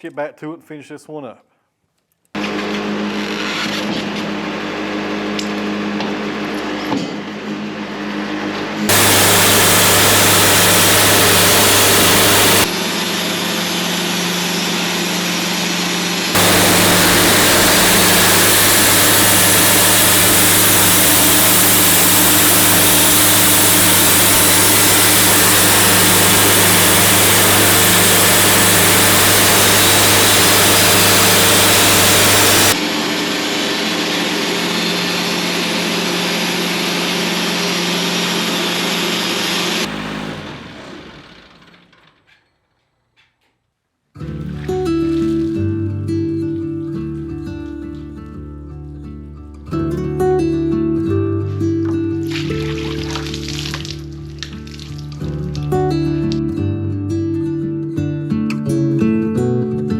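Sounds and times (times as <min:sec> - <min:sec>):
small engine running: 0:07.5 - 0:42.3
loud even hiss: 0:08.9 - 0:12.9, 0:16.4 - 0:33.3.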